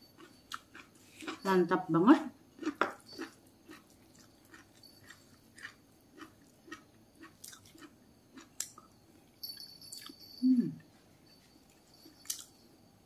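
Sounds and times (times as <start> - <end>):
wet chewing clicks and smacks: 2.6 - 8.9.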